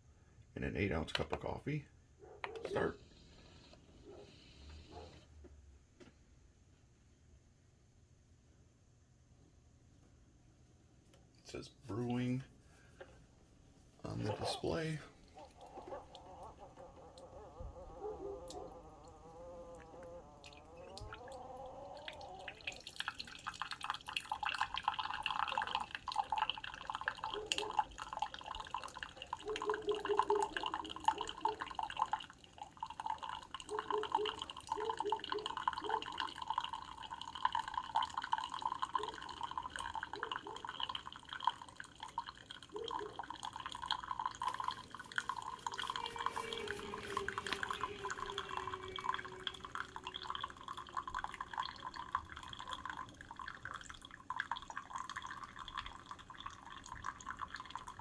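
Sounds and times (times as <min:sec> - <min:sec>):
coffee dripping into cup: 0:14.1 - 0:58.0
pump buzzing: 0:44.6 - 0:50.8.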